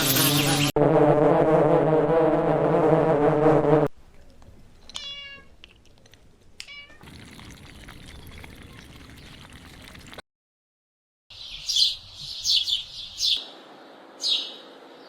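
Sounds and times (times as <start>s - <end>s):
cat meowing: 5.0s - 5.5s, 6.7s - 7.0s.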